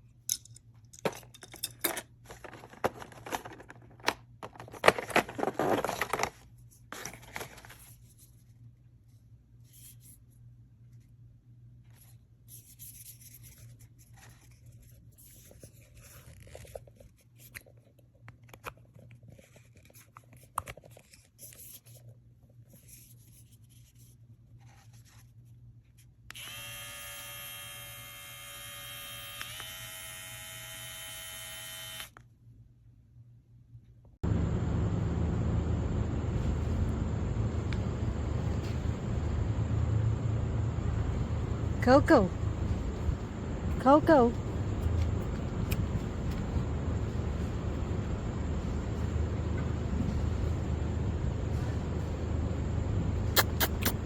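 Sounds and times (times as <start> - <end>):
plastic parts clicking and scraping: 0.3 - 7.8
pet clipper buzzing: 26.3 - 32.2.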